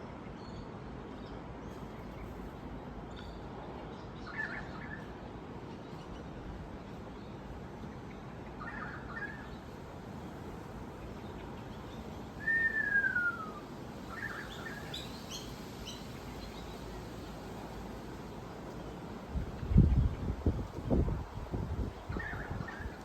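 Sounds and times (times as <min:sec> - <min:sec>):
outdoor background hiss: 0:00.0 - 0:23.0
wild birds chirping: 0:07.1 - 0:23.0.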